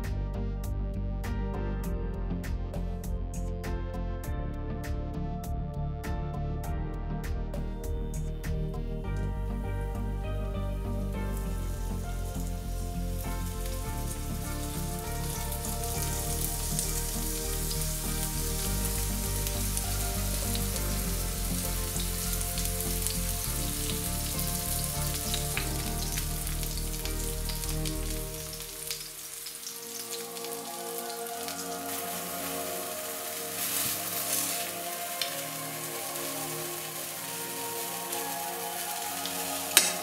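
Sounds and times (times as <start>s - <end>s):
background music: 0.0s - 40.0s
aubergine sizzling in hot oil: 10.2s - 40.0s.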